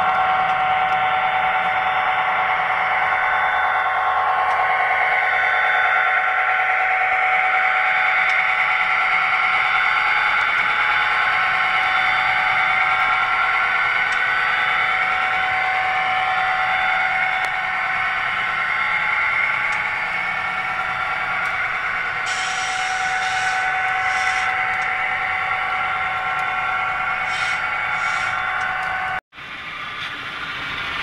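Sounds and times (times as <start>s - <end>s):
short hissing: 22.3s - 24.5s.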